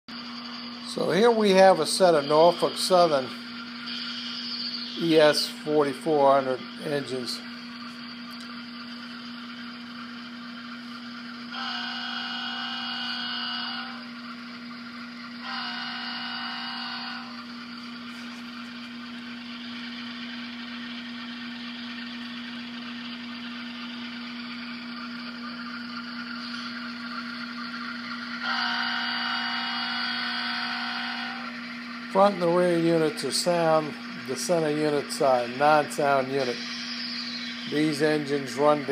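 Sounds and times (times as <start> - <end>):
model diesel engine drone: 0.1 - 38.9
locomotive horn chord: 11.5 - 14.0, 15.4 - 17.4, 28.4 - 31.5.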